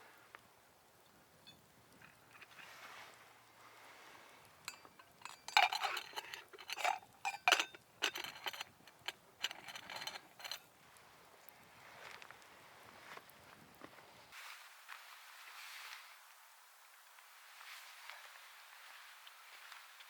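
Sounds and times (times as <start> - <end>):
camp cookware clinking and scraping: 1.4 - 2.9, 4.6 - 10.7.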